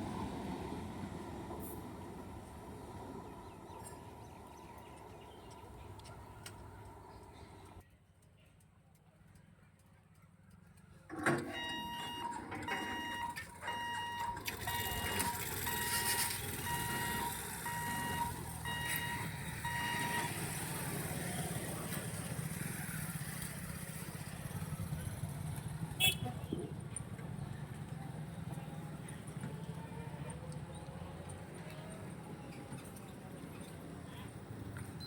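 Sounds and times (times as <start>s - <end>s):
level crossing warning beeps: 11.1s - 20.6s.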